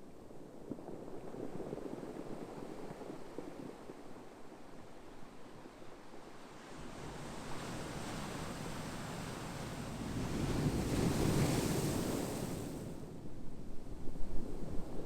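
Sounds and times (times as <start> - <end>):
ocean waves: 7.1 - 13.0.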